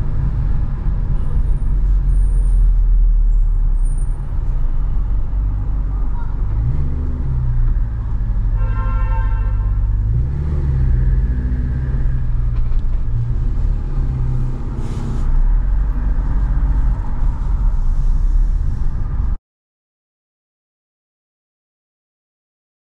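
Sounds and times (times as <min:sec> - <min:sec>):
car horn: 0:08.5 - 0:10.2.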